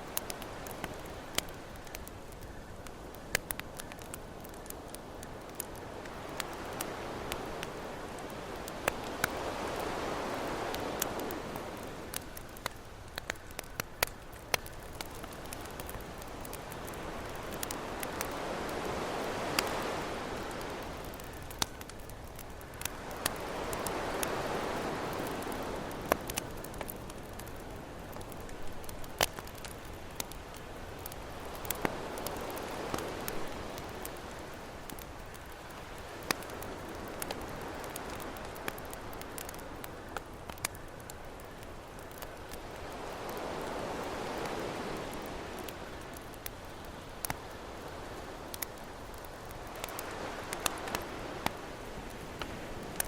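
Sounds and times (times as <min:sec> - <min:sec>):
campfire crackling and popping: 0:00.0 - 0:53.0
ocean waves: 0:03.4 - 0:21.8, 0:22.4 - 0:40.7, 0:42.4 - 0:53.0
ocean wave washing: 0:06.0 - 0:12.4.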